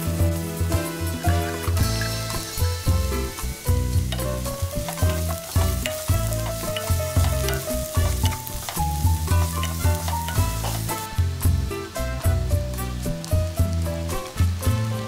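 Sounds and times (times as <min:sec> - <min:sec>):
background music with beat: 0:00.0 - 0:15.0
food sizzling and stirred: 0:00.0 - 0:15.0.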